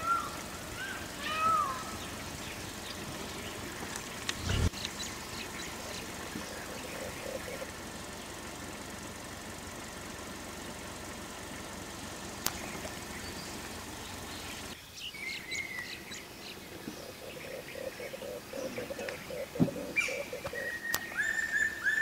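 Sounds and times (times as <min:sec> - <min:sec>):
rapidly pulsing bird call: 0:00.0 - 0:09.8, 0:11.9 - 0:22.0
birds chirping: 0:00.0 - 0:22.0
steady rushing noise: 0:04.3 - 0:04.8.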